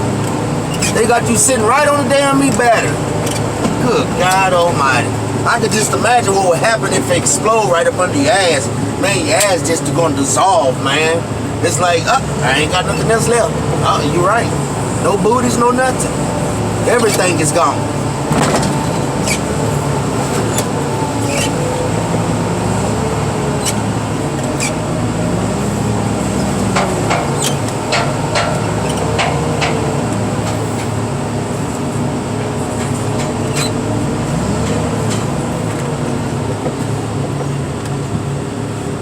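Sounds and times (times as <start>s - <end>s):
heavy equipment engine running: 0.0s - 39.0s
sharp clicks and knocks: 18.3s - 19.4s, 26.6s - 31.0s.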